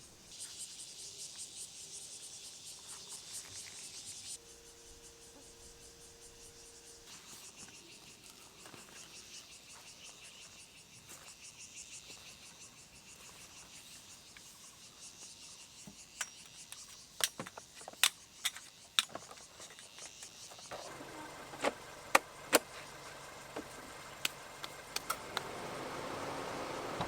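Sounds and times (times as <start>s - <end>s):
insects chirping: 0.0s - 27.0s
sharp clicks: 23.6s - 25.5s.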